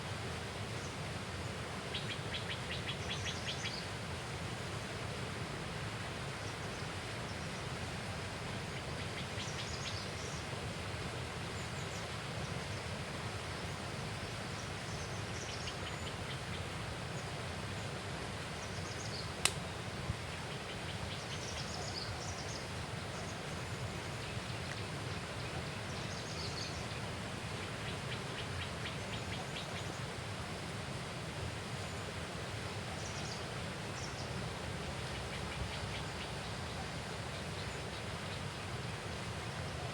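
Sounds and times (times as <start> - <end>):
riverbank ambience: 0.0 - 39.9
sharp click: 19.4 - 19.6.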